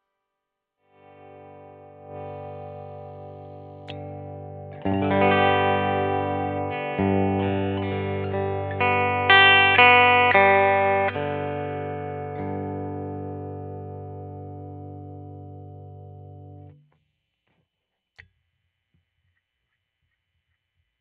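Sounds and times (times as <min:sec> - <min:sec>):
electric guitar notes and chords: 0:01.0 - 0:16.8.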